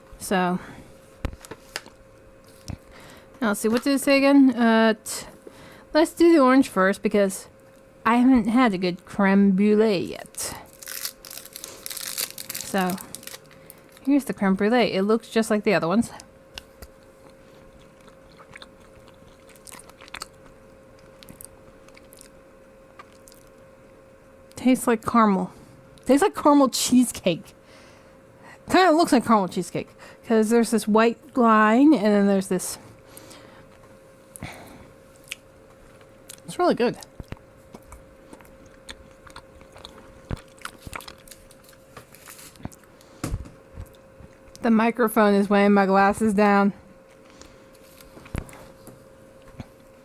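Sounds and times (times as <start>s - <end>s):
faint steady hum: 0.0s - 50.0s
chocolate shell crackling: 10.3s - 14.4s
biting and chewing chocolate: 10.4s - 14.2s, 16.1s - 23.6s, 35.2s - 43.0s.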